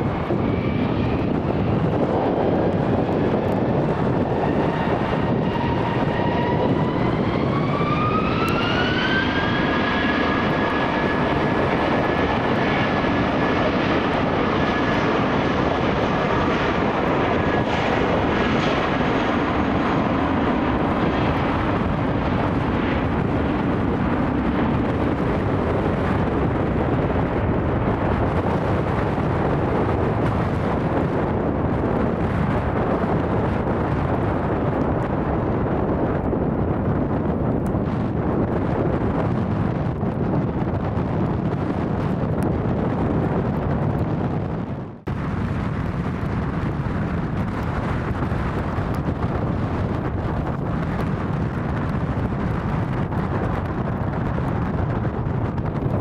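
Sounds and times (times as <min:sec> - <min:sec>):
jet engines spooling up: 0:00.0 - 0:33.9.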